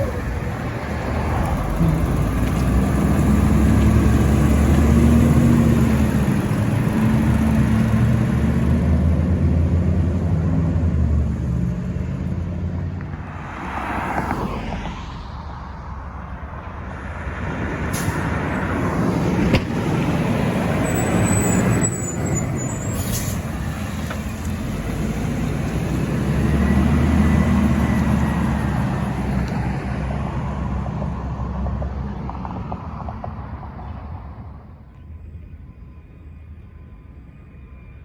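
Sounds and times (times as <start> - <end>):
garbage truck driving past: 0.0 - 12.2, 17.6 - 31.2.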